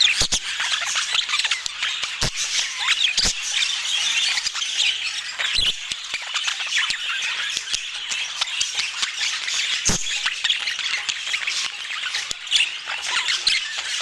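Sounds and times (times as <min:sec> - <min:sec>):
budgies chattering: 0:00.0 - 0:14.0
sharp click: 0:02.2 - 0:03.6.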